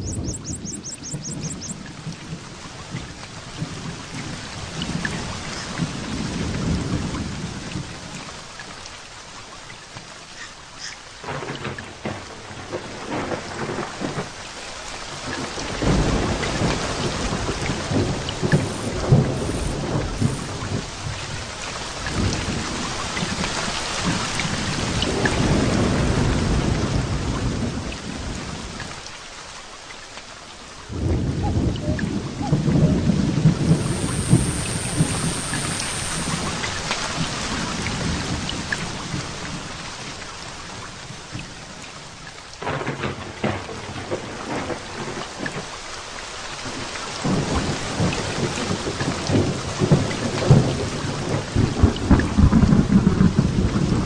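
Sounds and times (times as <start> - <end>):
rolling thunder: 0.0 - 8.0, 15.2 - 28.8, 30.9 - 39.8, 42.6 - 45.7, 47.2 - 54.0
heavy rain falling: 0.0 - 54.0.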